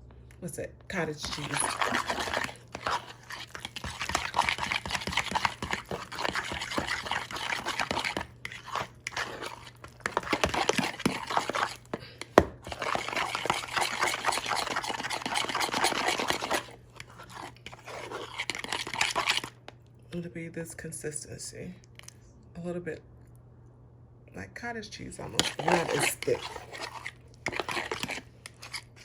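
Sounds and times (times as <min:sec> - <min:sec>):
utensil stirring wet mixture: 0:00.9 - 0:19.8, 0:25.1 - 0:29.0.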